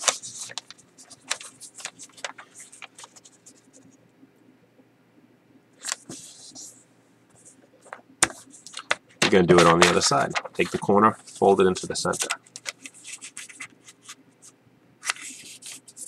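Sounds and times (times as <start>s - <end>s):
paper being folded: 0.0s - 3.6s, 8.4s - 14.2s, 15.0s - 16.0s.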